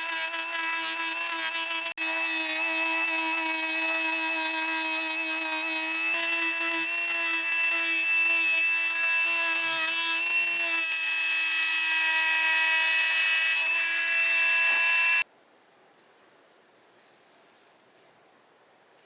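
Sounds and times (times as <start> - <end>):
electric power tool whining: 0.0 - 15.2.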